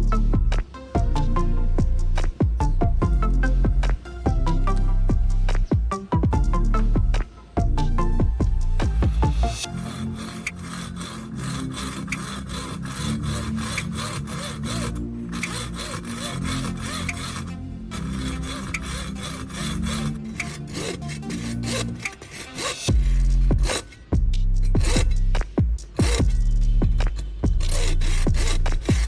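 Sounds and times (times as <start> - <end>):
background music: 0.0 - 29.0
hand tool filing: 9.5 - 24.1, 24.7 - 26.4, 27.0 - 29.0.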